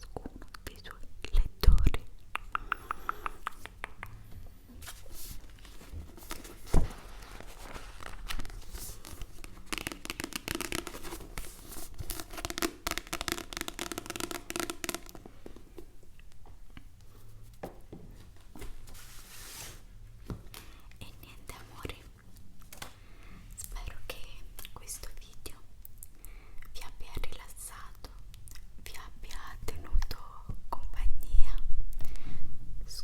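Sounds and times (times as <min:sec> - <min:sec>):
hand taps and clicks on objects: 0:02.4 - 0:04.2
rapid crinkling strokes: 0:04.8 - 0:15.1.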